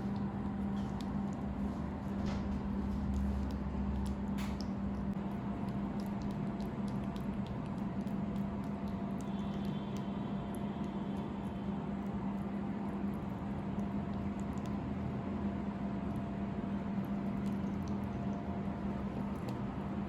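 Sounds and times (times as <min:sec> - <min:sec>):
light clicks and scratches: 0:00.0 - 0:10.9.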